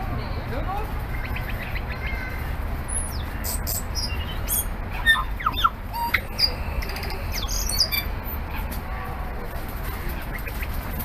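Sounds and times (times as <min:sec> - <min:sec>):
steady low rumble: 0:00.0 - 0:11.0
bird singing whistles and chirps: 0:02.9 - 0:06.6, 0:07.3 - 0:08.1.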